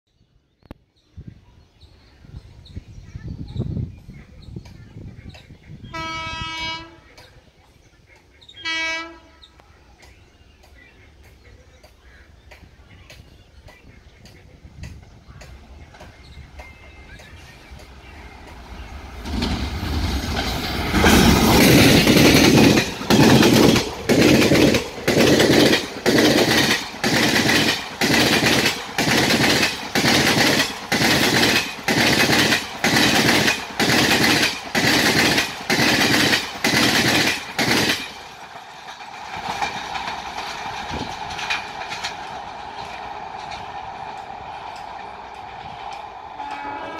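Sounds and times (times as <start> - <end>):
wheels clattering over rail joints: 10.1 - 46.4
train rushing past: 11.2 - 46.9.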